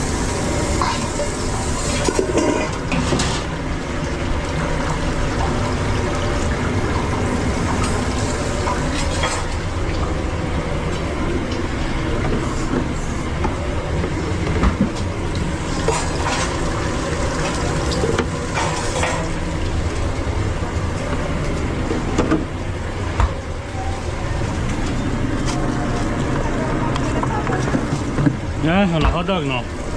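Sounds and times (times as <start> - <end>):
kitchen rumbling hiss: 0.0 - 29.9
utensils clattering: 1.9 - 3.5, 7.8 - 9.6, 15.7 - 16.6.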